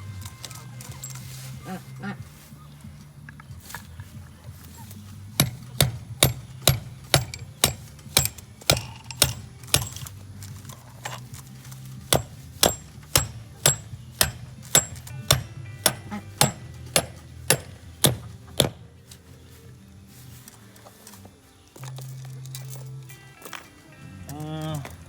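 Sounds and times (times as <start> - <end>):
taps on metal bolt: 5.4 - 10.1, 12.1 - 18.8.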